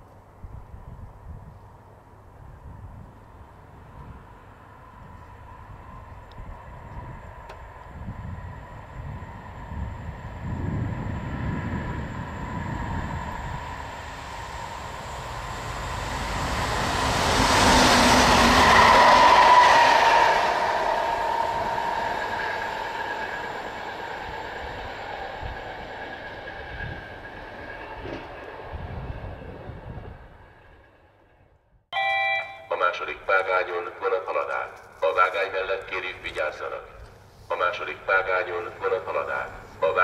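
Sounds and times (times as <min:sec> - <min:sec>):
train whine: 0:02.4 - 0:40.0
electric train passing: 0:03.4 - 0:34.2.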